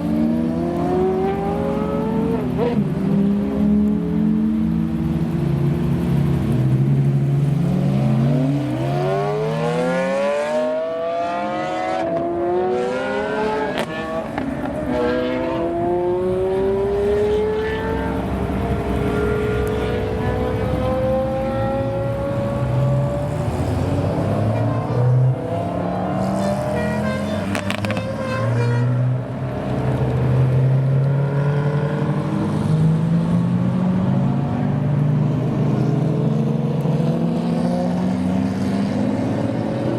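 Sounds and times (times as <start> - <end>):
cars revving and accelerating: 0.0 - 39.9
car engines idling: 1.2 - 8.9, 16.2 - 23.6.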